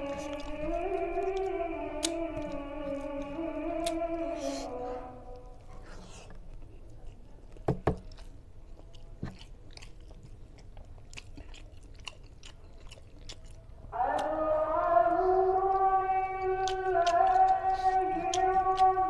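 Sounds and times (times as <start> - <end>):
wet chewing with lip smacks: 5.3 - 14.3, 15.8 - 19.0.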